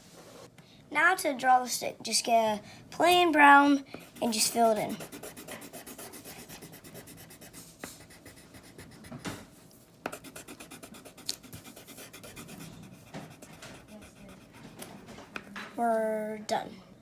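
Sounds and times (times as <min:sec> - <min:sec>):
pencil scribbling on paper: 0:04.0 - 0:09.5, 0:10.1 - 0:15.5.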